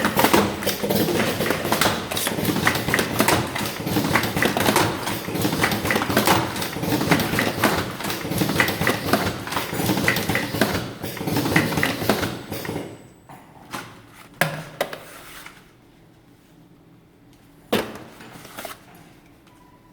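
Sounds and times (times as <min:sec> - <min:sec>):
cartoning machine clattering: 0:00.0 - 0:13.0.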